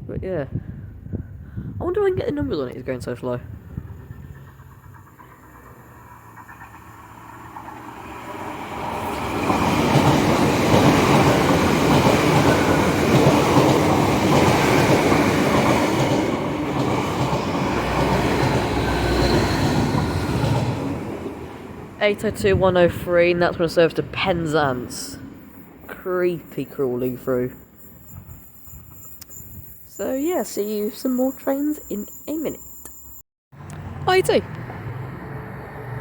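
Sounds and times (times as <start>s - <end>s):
train passing with diesel rumble: 2.7s - 36.0s.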